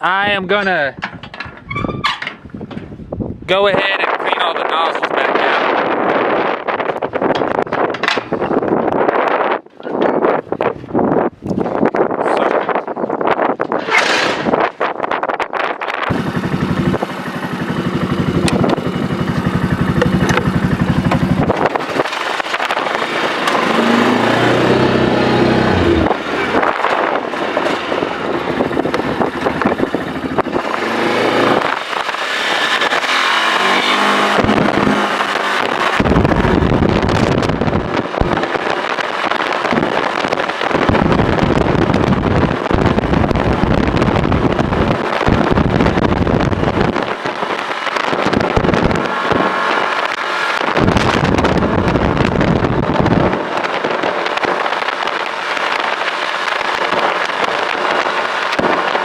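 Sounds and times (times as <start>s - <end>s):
dense rushing noise: 13.8s - 59.0s
engine running: 16.1s - 59.0s.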